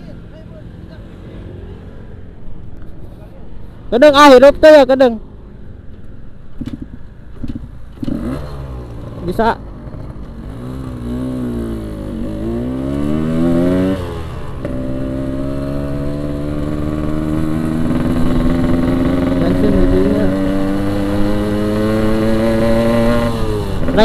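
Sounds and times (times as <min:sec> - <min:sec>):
two-stroke motorcycle engine revving: 0:07.4 - 0:24.0.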